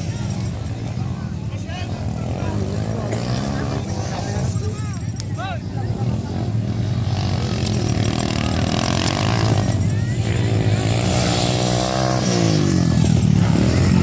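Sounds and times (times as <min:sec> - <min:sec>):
dirt bike engine revving: 0:01.9 - 0:04.8, 0:05.8 - 0:14.0.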